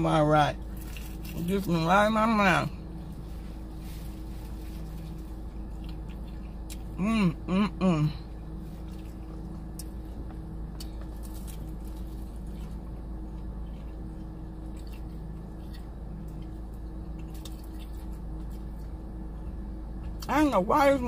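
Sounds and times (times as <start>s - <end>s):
steady low hum: 0.0s - 21.0s
person chewing food: 4.2s - 7.0s, 8.3s - 20.3s.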